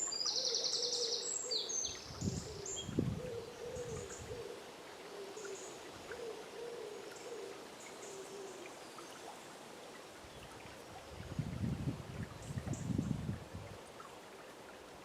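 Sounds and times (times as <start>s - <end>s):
running river water: 0.0s - 15.0s
bird low hooting calls: 0.3s - 8.6s
low rumbling surges of water: 1.9s - 6.4s, 7.2s - 15.0s.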